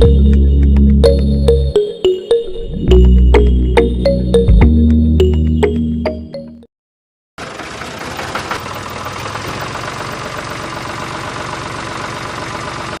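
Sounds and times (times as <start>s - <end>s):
small motor rattling: 7.4s - 13.0s.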